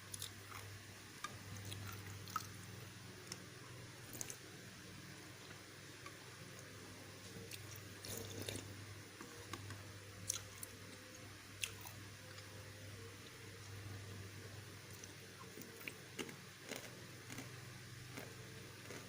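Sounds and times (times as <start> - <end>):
steady low hum: 0.0 - 19.0
faint chewing: 5.4 - 12.5, 14.9 - 19.0.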